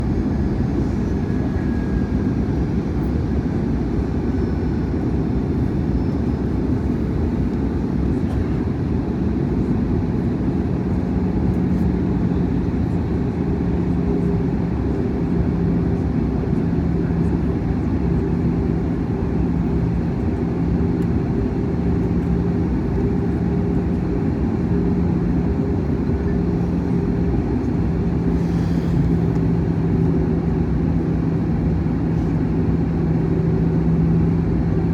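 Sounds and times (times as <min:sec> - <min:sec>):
aircraft cabin engine rumble: 0:00.0 - 0:34.9.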